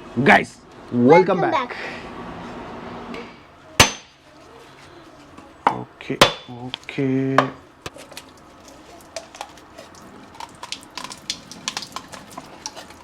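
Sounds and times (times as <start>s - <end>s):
coconut water dripping: 8.0s - 13.0s.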